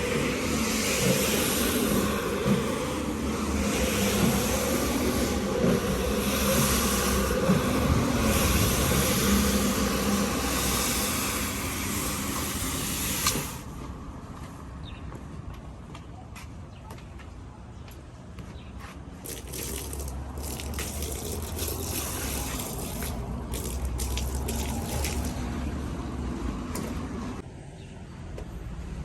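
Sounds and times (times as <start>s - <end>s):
water running and splashing: 19.2s - 25.5s.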